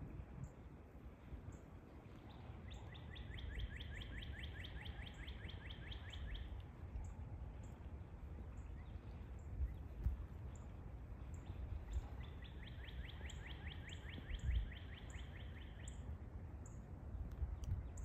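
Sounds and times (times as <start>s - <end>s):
songbird trilling: 2.7s - 6.6s, 11.2s - 16.8s.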